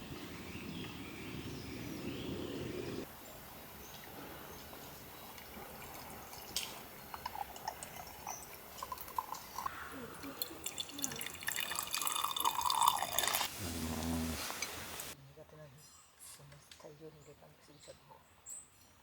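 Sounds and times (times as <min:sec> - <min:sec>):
liquid dripping and trickling: 0:05.1 - 0:13.5.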